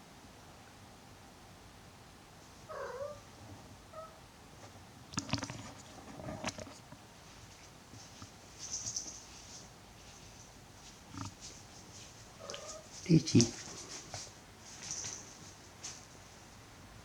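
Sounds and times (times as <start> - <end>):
cat chirping: 2.7 - 3.2, 12.4 - 12.9
cat meowing: 2.7 - 3.2, 12.4 - 12.9.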